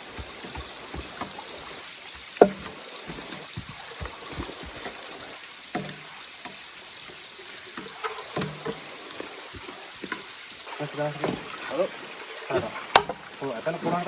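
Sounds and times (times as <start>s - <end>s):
knocks and thumps: 0.0s - 6.6s, 11.2s - 11.6s
steady rain hiss: 0.0s - 14.0s.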